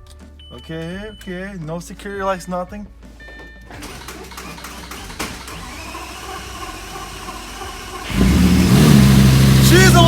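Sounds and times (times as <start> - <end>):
car engine cranked by starter motor: 3.8 - 10.0.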